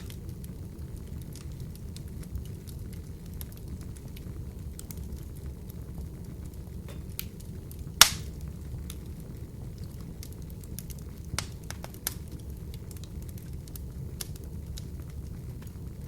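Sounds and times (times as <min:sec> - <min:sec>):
fire flames rumbling: 0:00.0 - 0:16.0
wood fire crackling: 0:00.0 - 0:16.0.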